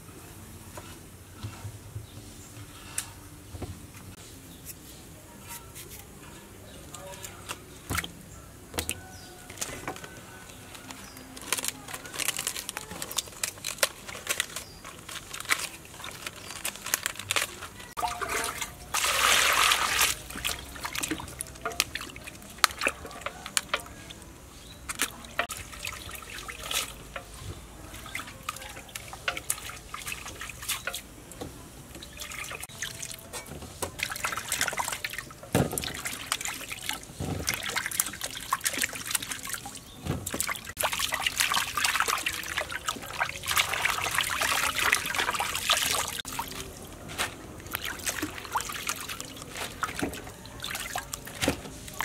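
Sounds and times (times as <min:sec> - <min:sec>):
water splashing in basin: 0:17.3 - 0:31.1, 0:31.9 - 0:52.0
rush of water: 0:18.0 - 0:24.2.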